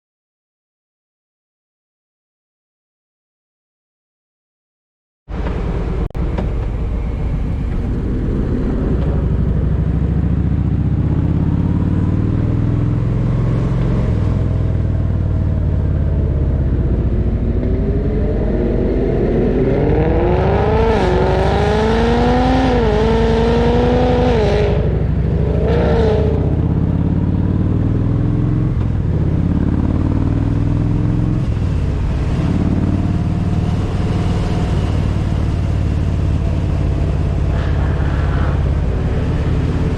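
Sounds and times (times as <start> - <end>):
wind rush: 5.3 - 15.1, 31.3 - 39.9
motorcycle engine running: 5.4 - 19.5, 22.0 - 39.9
engine revving through gear changes: 7.8 - 39.9.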